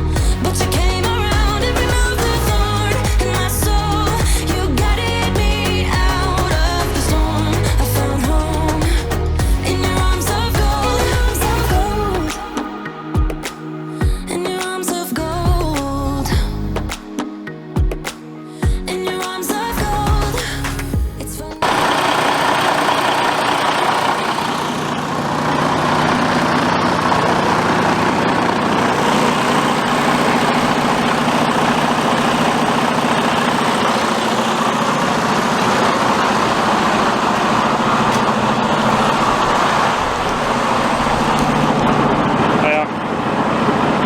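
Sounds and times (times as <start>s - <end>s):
diesel truck engine running: 0.0s - 12.3s, 21.6s - 44.0s.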